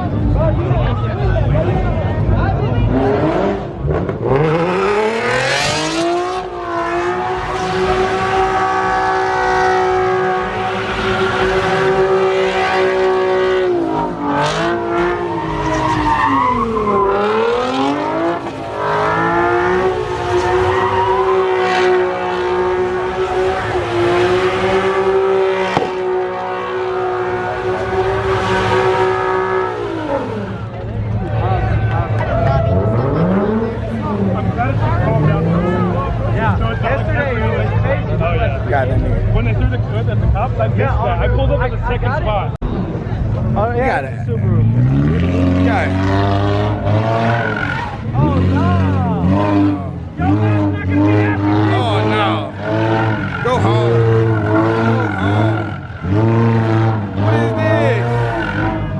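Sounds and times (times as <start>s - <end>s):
car engine revving: 0.0s - 58.9s
tyres squealing: 14.8s - 18.6s.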